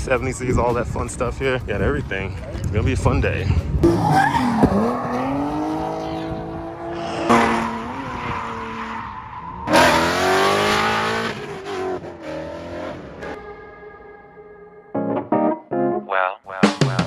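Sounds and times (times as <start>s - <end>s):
car engines revving: 3.7s - 13.6s
tires squealing: 3.8s - 13.4s.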